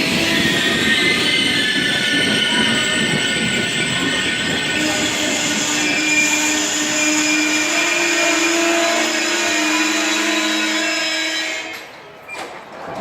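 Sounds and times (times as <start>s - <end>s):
train rushing noise: 0.0s - 11.9s.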